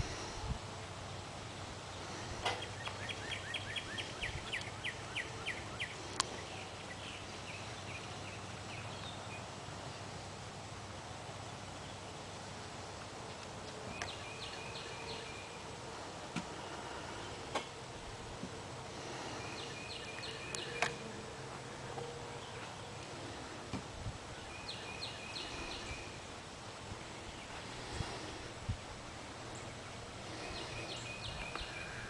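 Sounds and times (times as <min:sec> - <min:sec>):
steady outdoor hiss: 0:00.0 - 0:32.0.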